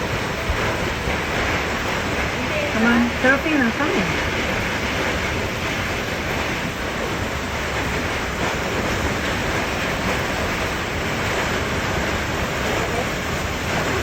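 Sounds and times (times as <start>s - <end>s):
hailstones pelting down: 0.0s - 14.0s.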